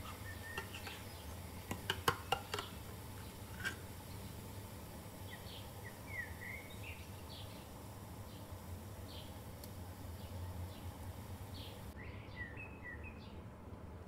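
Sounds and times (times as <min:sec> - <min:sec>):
faint bird chirps: 0:00.1 - 0:01.4, 0:05.2 - 0:07.7, 0:11.5 - 0:13.4.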